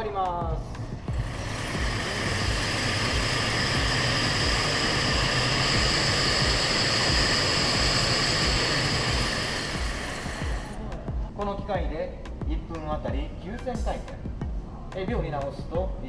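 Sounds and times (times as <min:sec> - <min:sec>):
high-pitched whine: 0:00.8 - 0:11.1
spinning machine whirring: 0:00.8 - 0:11.1.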